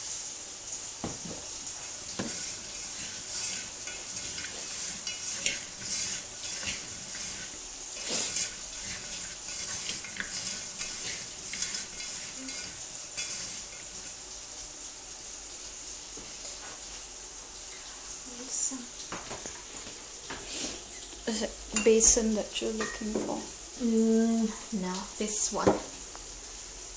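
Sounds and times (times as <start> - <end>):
steady hiss: 0.0 - 26.9
utensil scraping cooking pot: 1.8 - 14.3.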